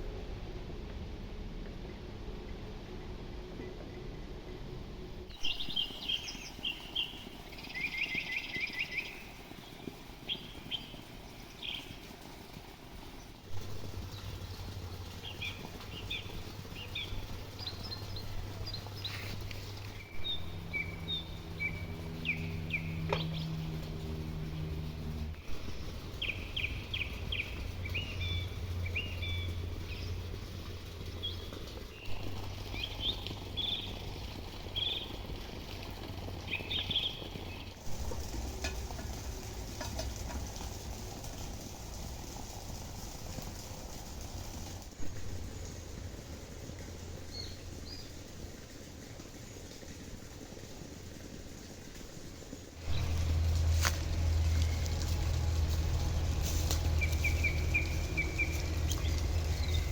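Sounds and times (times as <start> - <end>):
low steady hum: 0.0 - 50.6, 52.6 - 59.9
small birds chirping: 5.3 - 42.7, 47.2 - 48.2, 52.8 - 59.9.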